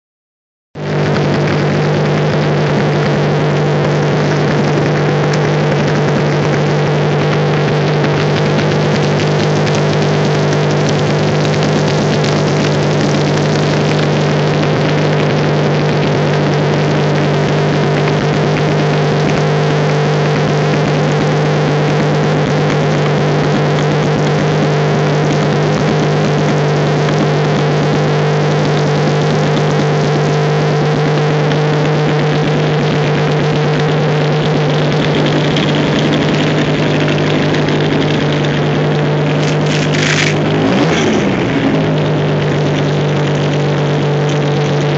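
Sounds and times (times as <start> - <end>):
rally car engine running: 0.7 - 44.9.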